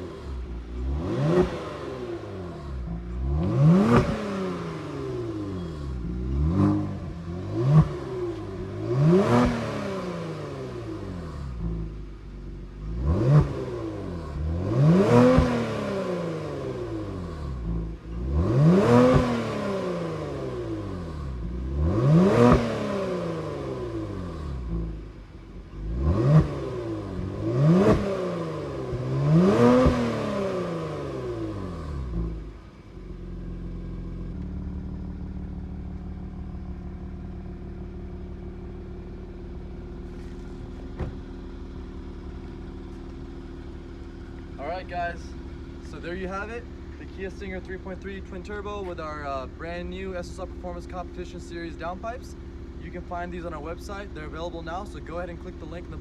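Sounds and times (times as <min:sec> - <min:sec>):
car engine revving in short blips: 0:00.0 - 0:11.9, 0:12.9 - 0:25.0, 0:25.8 - 0:32.5
car engine idling: 0:00.0 - 0:56.0.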